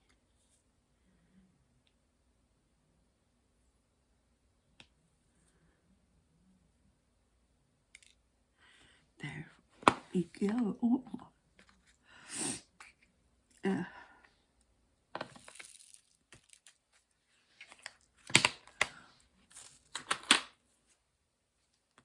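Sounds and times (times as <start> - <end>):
plastic rustling and crinkling: 15.2 - 20.4.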